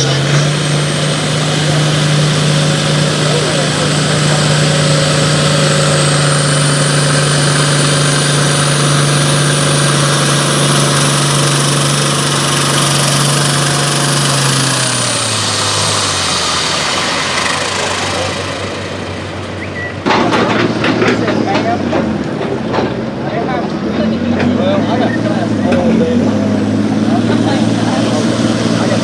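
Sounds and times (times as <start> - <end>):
high whine: 0.0 - 20.1
pulling engine running hard: 0.0 - 29.0.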